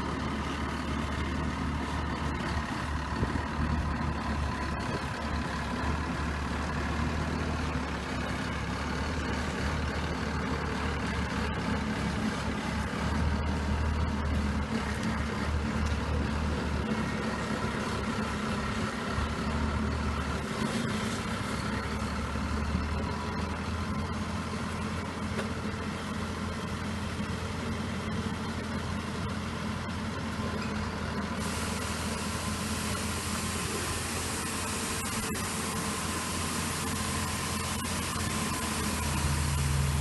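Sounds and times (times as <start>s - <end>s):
combine harvester engine drone: 0.0s - 40.0s
bright hiss: 31.4s - 40.0s.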